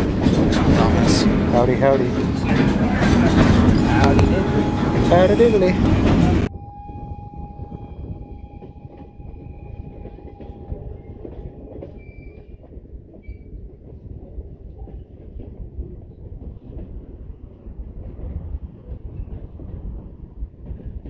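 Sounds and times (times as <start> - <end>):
steel wheels rumbling on rail: 0.0 - 21.0
thin steady squeal: 3.8 - 12.6.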